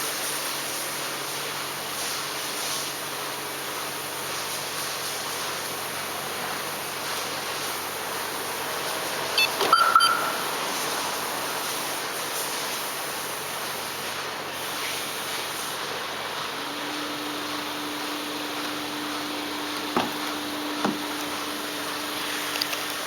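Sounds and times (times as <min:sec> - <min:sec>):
car alarm electronic chirp: 0:09.4 - 0:10.9.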